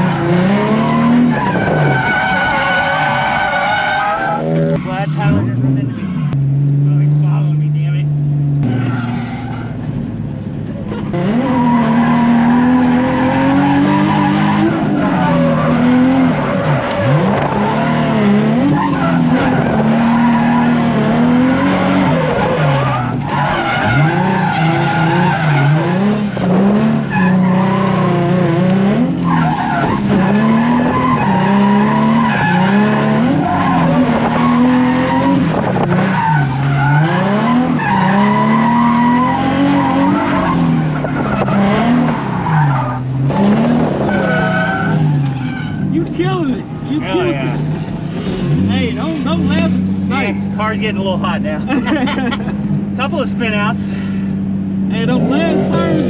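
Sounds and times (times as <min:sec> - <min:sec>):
car engine revving: 0:00.0 - 0:56.0
tyres skidding: 0:00.0 - 0:56.0.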